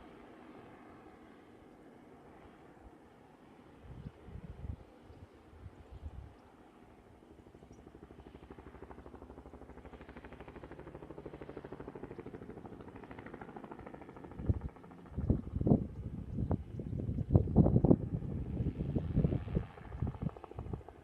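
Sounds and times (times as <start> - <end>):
wind buffeting microphone: 3.8 - 6.3, 14.3 - 20.9
helicopter rotor beating: 7.3 - 21.0.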